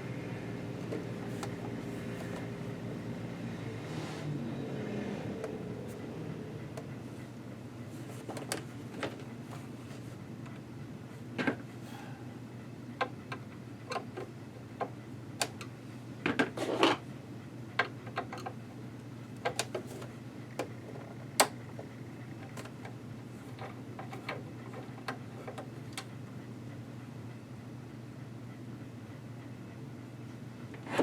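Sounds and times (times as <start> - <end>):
steady low hum: 0.0 - 16.2.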